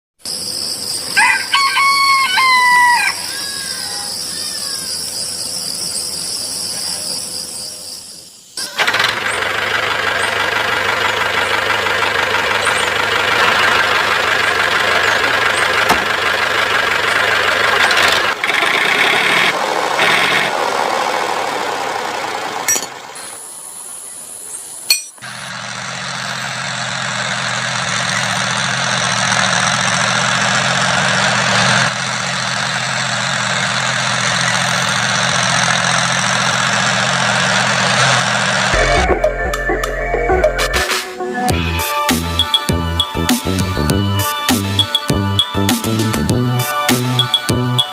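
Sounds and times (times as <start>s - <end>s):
rooster crowing: 1.1s - 5.4s
small tractor motor running: 8.6s - 23.9s, 25.2s - 38.8s
high-pitched whine: 38.0s - 47.9s.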